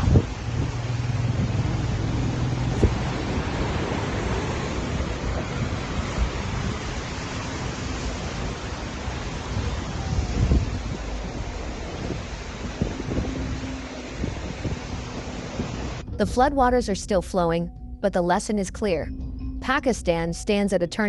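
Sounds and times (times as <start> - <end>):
wind buffeting microphone: 0.0 - 16.5
floodwater rushing: 0.0 - 16.9.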